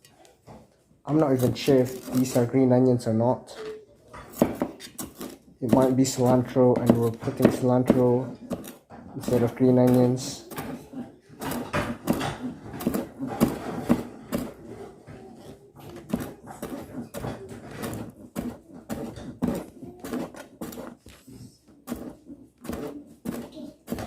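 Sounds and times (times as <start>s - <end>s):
knife chopping on cutting board: 4.3s - 14.8s, 15.4s - 21.0s, 21.8s - 24.0s.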